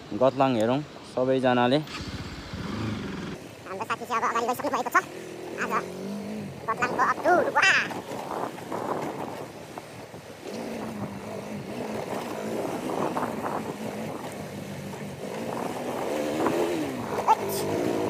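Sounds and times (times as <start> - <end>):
wind noise on microphone: 6.4 - 18.0.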